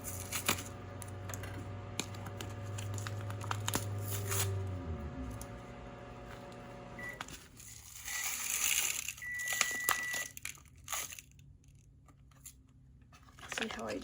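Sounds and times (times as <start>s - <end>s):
plastic packet crinkling: 7.3s - 11.5s
electronic beep: 9.2s - 10.2s.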